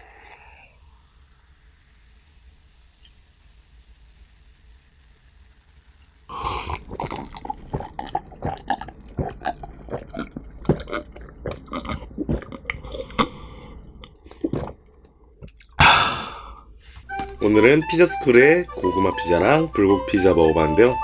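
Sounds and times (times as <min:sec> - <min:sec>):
chewing pizza: 0:06.3 - 0:15.9.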